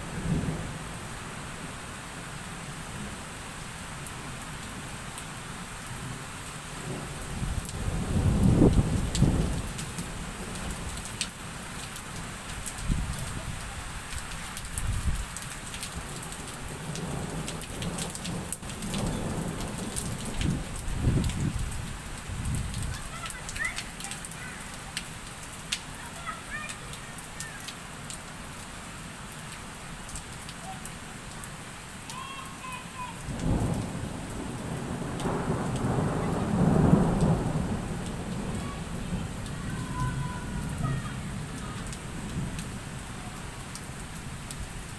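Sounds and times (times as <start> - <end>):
steady rain: 0.0 - 44.9
raindrops ticking: 4.0 - 44.9
thunder rumbling: 6.8 - 11.2, 16.0 - 24.7, 33.2 - 44.9.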